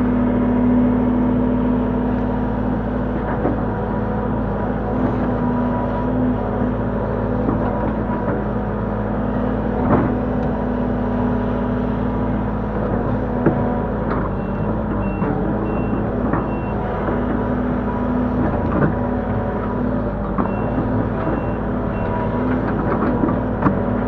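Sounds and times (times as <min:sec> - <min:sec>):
excavator diesel engine running: 0:00.0 - 0:24.0
reversing alarm beeping: 0:14.3 - 0:16.8, 0:20.5 - 0:22.4.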